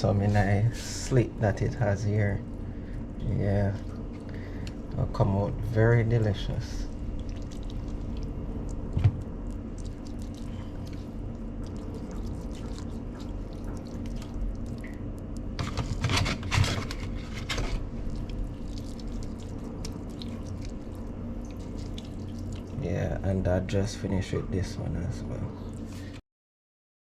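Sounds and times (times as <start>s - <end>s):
wet squishy handling of raw fish: 0.0s - 22.8s
steady low hum: 0.0s - 26.2s.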